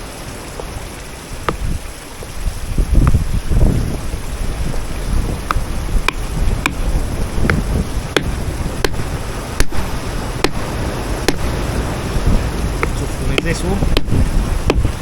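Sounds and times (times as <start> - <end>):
hammer tapping on stone: 5.5 - 9.8, 11.2 - 11.5, 12.8 - 14.9.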